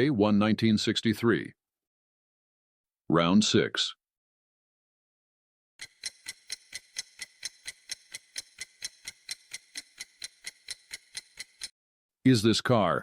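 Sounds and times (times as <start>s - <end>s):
clock ticking: 5.8s - 11.7s.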